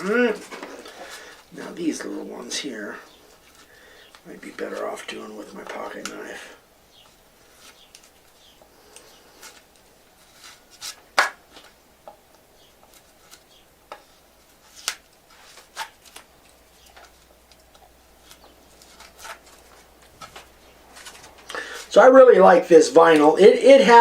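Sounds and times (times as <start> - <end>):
knife scraping wood: 18.2 - 21.8.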